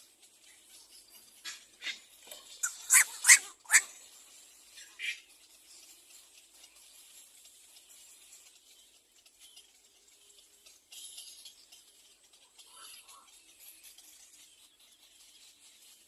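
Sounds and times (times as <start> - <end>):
egret squawking: 2.6 - 3.9.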